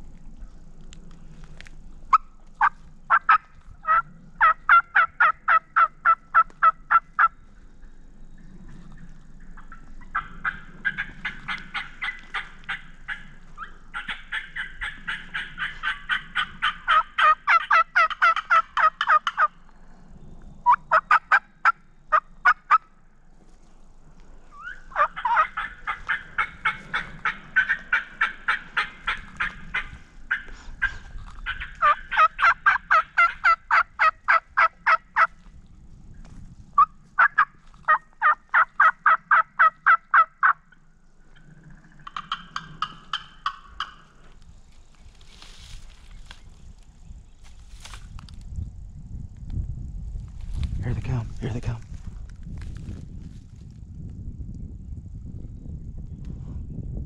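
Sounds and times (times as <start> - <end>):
wild turkey yelping: 2.1 - 8.0, 8.6 - 19.6, 20.6 - 22.9, 24.5 - 35.4, 36.8 - 44.4.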